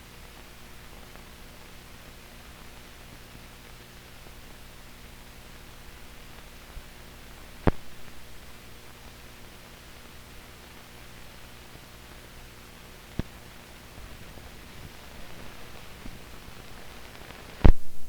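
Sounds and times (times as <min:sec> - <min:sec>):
film hiss with low hum: 0:00.0 - 0:18.0
small click: 0:07.6 - 0:07.9
sharp pop: 0:17.6 - 0:17.9.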